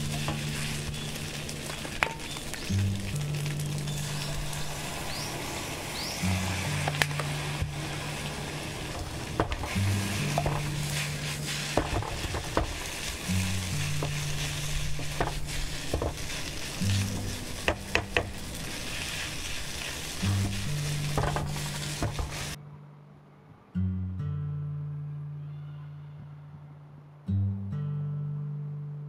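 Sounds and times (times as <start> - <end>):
rice sizzling in a pan: 0.0 - 22.6.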